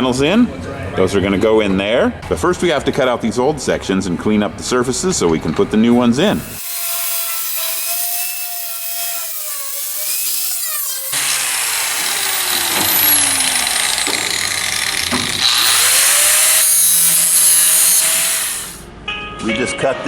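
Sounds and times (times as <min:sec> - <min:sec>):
power tool cutting sheet steel: 0:06.3 - 0:18.9.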